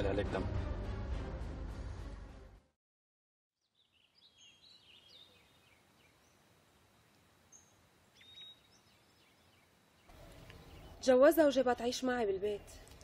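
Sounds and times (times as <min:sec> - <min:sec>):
faint birds chirping: 0:03.6 - 0:13.0
outdoor hiss: 0:04.4 - 0:12.1.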